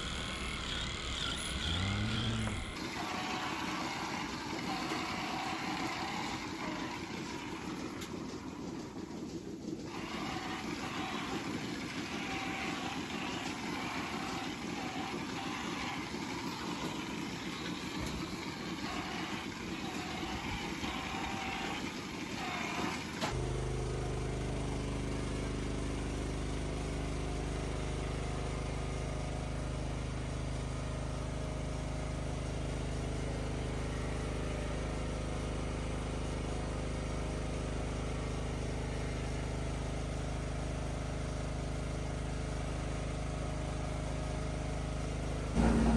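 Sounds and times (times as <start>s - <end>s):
deep engine hum: 0.0s - 2.8s, 23.4s - 45.9s
machinery running: 0.0s - 41.9s, 42.6s - 45.9s.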